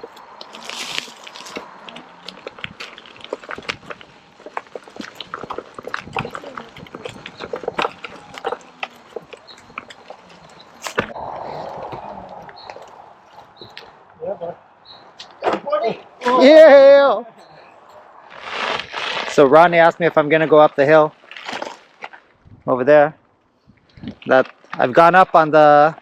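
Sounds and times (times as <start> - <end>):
stones and gravel clicking: 0.0 - 14.0, 20.8 - 22.4.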